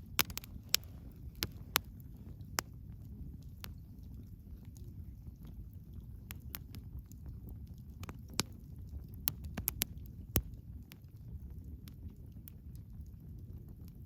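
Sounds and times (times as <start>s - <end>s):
bonfire pops and snaps: 0.0s - 14.0s
low rumble of flames: 0.0s - 14.0s.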